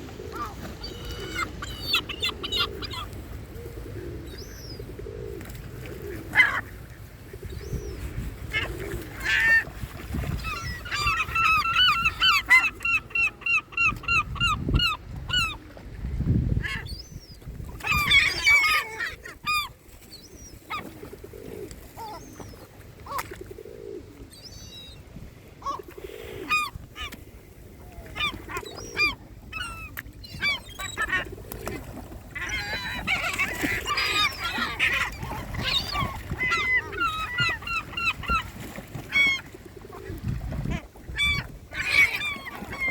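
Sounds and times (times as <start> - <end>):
waterbirds honking: 10.3 - 15.6, 28.1 - 42.9.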